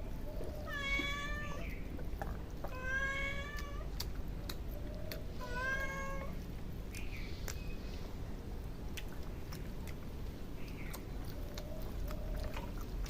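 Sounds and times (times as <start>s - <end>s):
cat meowing: 0.6s - 1.7s, 2.7s - 3.9s, 5.4s - 6.4s.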